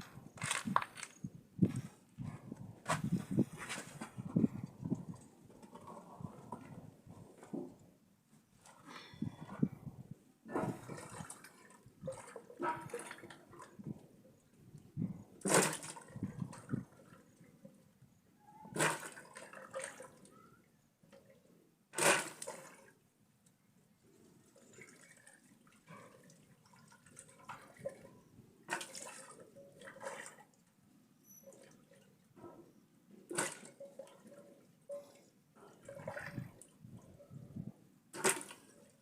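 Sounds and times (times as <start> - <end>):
handling sounds: 0.4 - 6.6.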